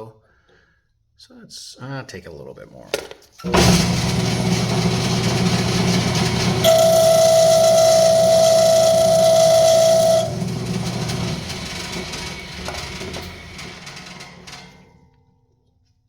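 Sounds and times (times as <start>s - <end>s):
wood lathe humming: 3.8s - 13.6s
high-pitched squeal of cutting tool: 6.6s - 10.4s.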